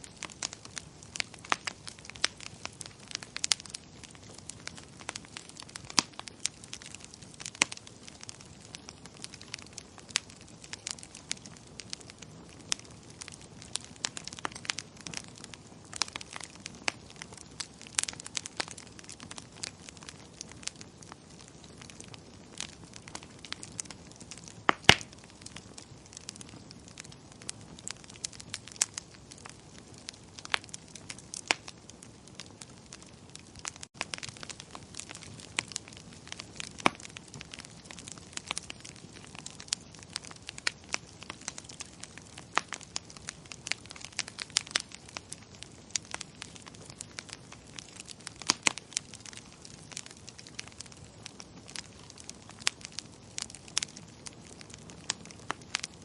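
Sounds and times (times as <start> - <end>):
wood fire popping and snapping: 0.0 - 56.0.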